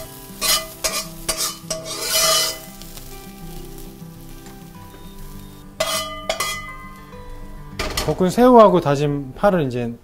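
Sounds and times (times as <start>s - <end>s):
stir-fry toss: 0.0s - 4.7s
shrimp sizzling in oil in a wok: 0.0s - 7.4s
light background music: 0.0s - 10.0s.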